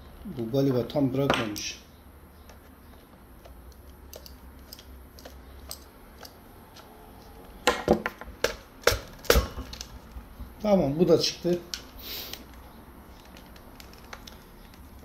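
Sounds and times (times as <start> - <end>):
plastic hair dryer parts clicking: 3.4 - 6.9, 11.7 - 15.0.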